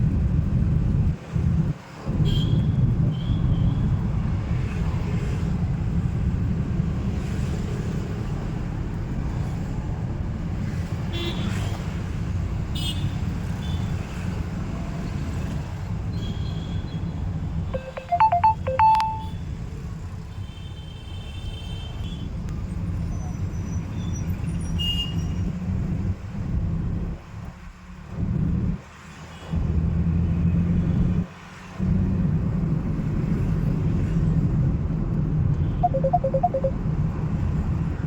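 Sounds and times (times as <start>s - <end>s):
road and traffic rumble: 0.0s - 38.0s.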